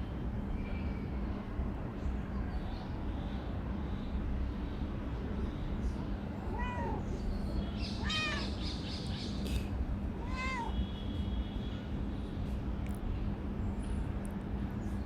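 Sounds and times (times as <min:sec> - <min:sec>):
low background rumble and hum: 0:00.0 - 0:15.0
cat meowing: 0:06.4 - 0:07.2, 0:08.0 - 0:08.6, 0:10.2 - 0:10.8.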